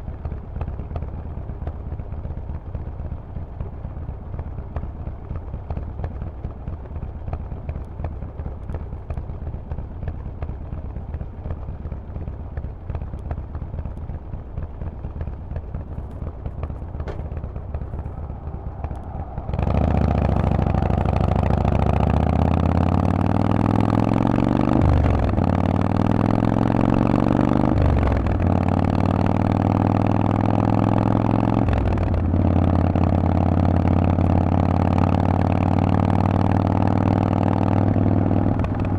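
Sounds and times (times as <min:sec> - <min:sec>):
motorcycle engine rumbling and revving: 0:00.1 - 0:38.9.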